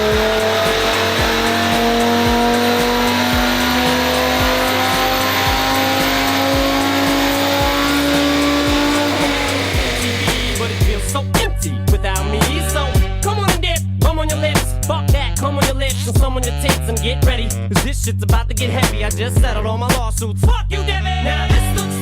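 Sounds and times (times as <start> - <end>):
car engine under load: 0.0 - 11.2
hip-hop music: 0.0 - 22.0.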